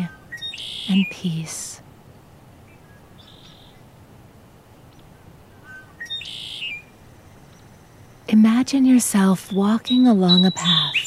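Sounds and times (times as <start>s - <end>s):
forest bird calling: 0.0s - 1.8s, 2.6s - 3.9s, 4.8s - 8.3s, 9.4s - 11.0s
faint steady background noise: 0.0s - 11.0s.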